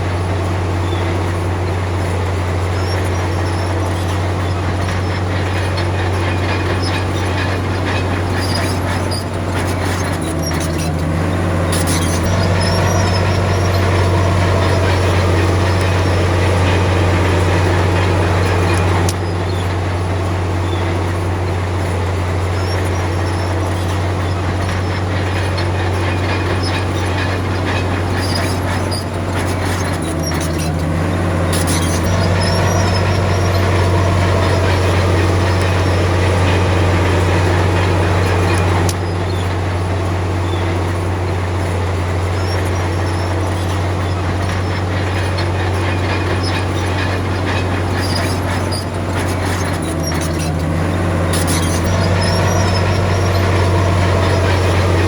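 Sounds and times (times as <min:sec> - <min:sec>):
bulldozer diesel engine droning: 0:00.0 - 0:55.0.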